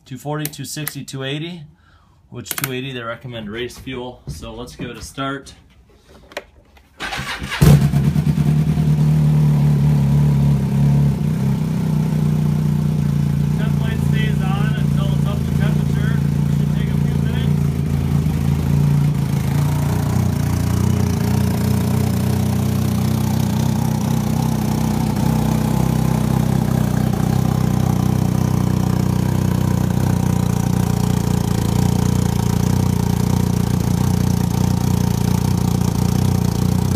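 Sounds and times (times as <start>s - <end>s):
snowmobile engine idling: 10.0s - 36.9s.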